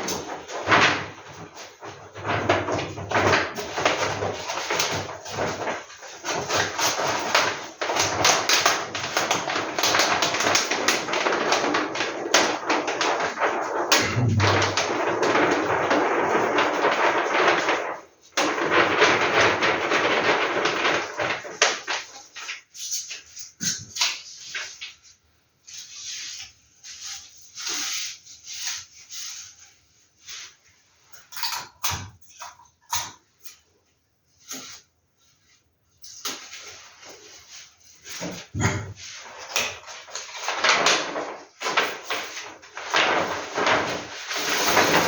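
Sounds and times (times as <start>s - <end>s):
packaging crinkling and rustling: 0.0s - 25.1s, 34.4s - 45.0s.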